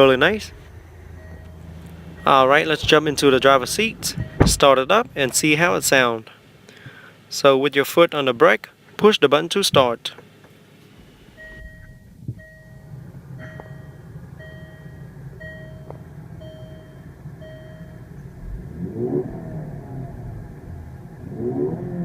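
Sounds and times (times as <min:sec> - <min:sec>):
in-car chime beeping: 0:00.0 - 0:05.8, 0:11.4 - 0:18.3
engine revving: 0:00.0 - 0:05.9, 0:18.3 - 0:22.0
car engine starting and idling: 0:00.0 - 0:07.4, 0:10.2 - 0:22.0.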